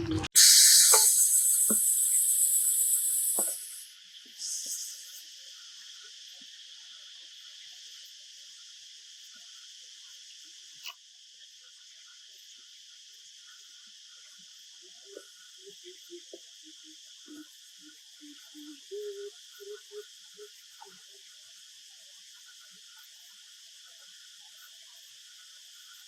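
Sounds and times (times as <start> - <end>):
sharp click: 0.4 - 3.8
insects chirring: 0.4 - 26.0.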